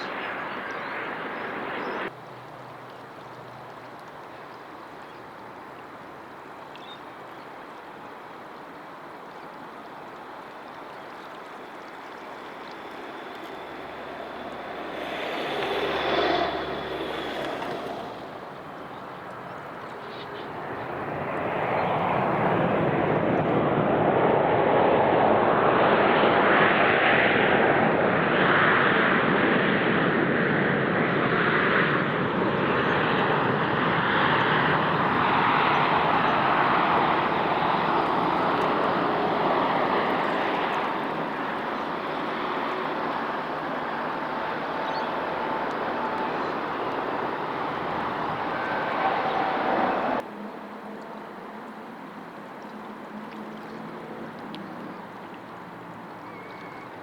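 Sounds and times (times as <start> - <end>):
jet airliner passing: 0.0 - 2.2, 8.3 - 50.2.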